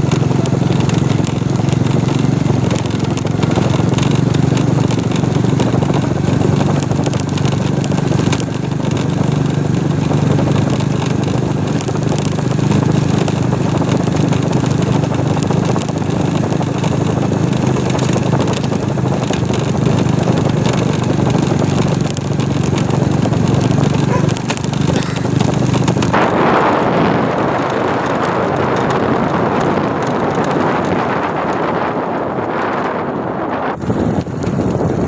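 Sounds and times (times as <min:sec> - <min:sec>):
motor engine humming: 0:00.0 - 0:35.0
wind noise on microphone: 0:00.0 - 0:35.0.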